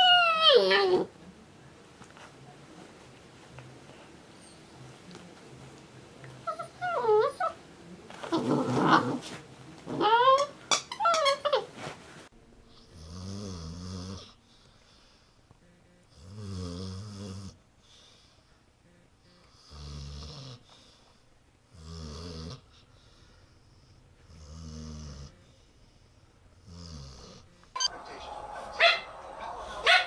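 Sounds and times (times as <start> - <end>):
dog snoring: 12.8 - 14.4, 16.1 - 17.6, 19.5 - 20.7, 21.7 - 22.8, 24.2 - 25.6, 26.6 - 27.6.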